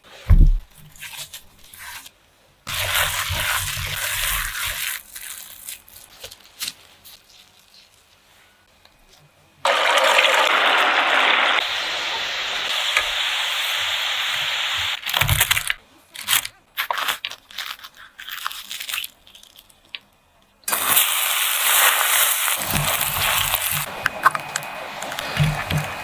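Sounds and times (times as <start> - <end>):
oil sizzling: 2.7 - 5.4, 9.6 - 15.1, 20.7 - 26.0
steady hiss: 10.5 - 15.2
crunchy shell tearing: 15.0 - 20.1.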